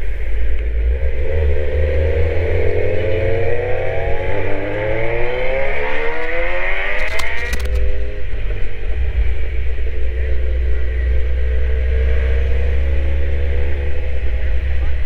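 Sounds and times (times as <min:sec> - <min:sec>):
motorcycle engine revving: 0:00.4 - 0:15.0
sharp clicks: 0:06.9 - 0:07.9.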